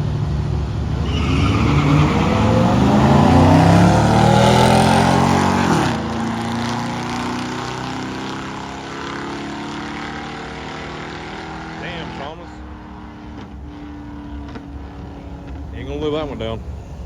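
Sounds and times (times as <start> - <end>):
cars accelerating hard: 0.0 - 17.0.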